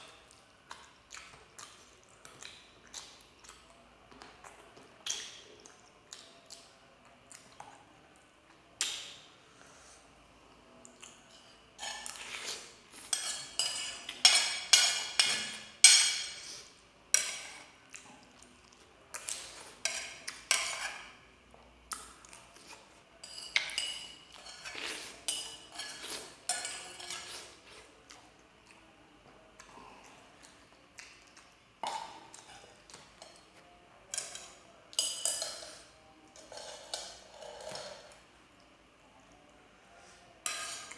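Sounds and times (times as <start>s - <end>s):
cutlery clinking on plate: 11.3s - 16.5s, 19.2s - 21.1s, 23.2s - 27.5s, 34.1s - 38.2s, 40.4s - 40.9s.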